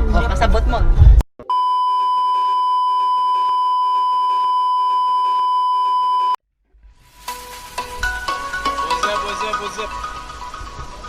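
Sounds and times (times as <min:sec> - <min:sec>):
censor bleep tone: 0:01.4 - 0:06.4
music: 0:07.0 - 0:11.0.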